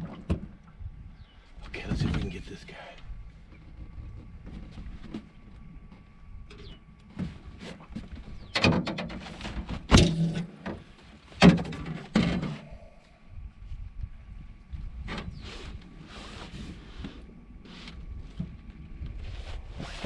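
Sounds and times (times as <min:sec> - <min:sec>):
faint steady hum: 0:00.0 - 0:20.0
knocks and scrapes on a boat: 0:03.4 - 0:12.7, 0:14.9 - 0:20.0.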